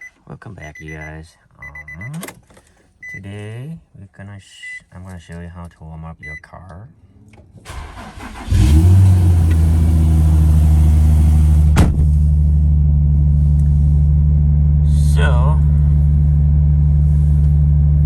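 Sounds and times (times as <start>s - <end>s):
car engine idling: 7.7s - 17.3s.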